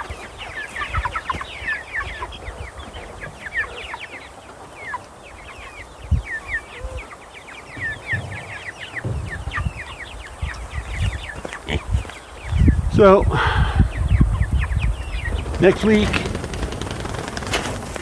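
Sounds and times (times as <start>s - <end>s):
chicks peeping: 0.0s - 18.0s
low thumps: 7.7s - 12.0s.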